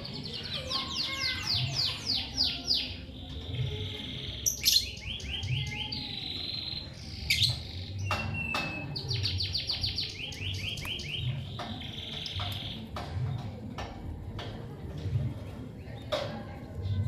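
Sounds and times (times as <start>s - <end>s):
lovebirds chirping: 0.0s - 13.5s.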